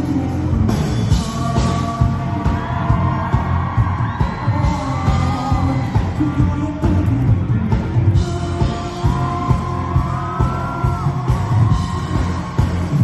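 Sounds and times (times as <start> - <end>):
person singing: 0.0 - 11.4
live pop-rock band: 0.0 - 13.0
drum beat: 0.5 - 13.0.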